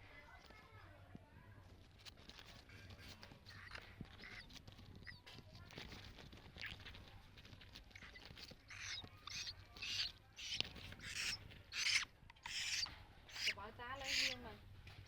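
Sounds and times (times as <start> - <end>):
nestling raspy begging calls: 8.0 - 14.5.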